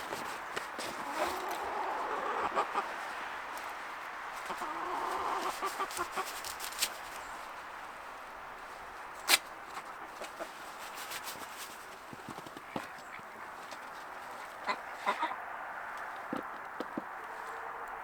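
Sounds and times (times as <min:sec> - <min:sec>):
chickens and ducks calling: 0:00.0 - 0:06.7, 0:09.3 - 0:10.6, 0:12.7 - 0:17.7.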